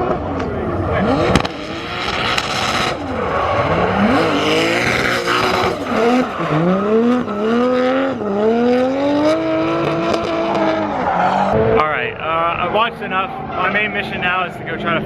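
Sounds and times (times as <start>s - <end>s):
engine revving hard: 0.7s - 11.8s.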